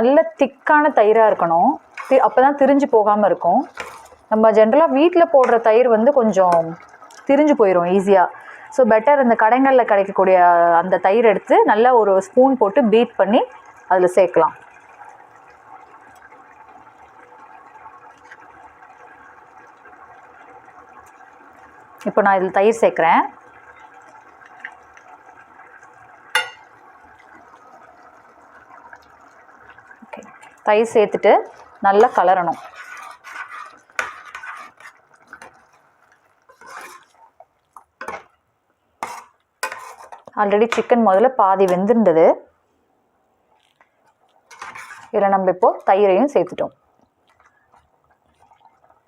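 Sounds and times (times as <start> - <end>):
curry bubbling in a pot: 0.0 - 42.4, 43.2 - 49.0
spoon scraping a pot: 1.9 - 2.3, 26.4 - 26.7, 32.0 - 35.8, 36.5 - 37.2, 39.0 - 40.3, 44.5 - 45.2.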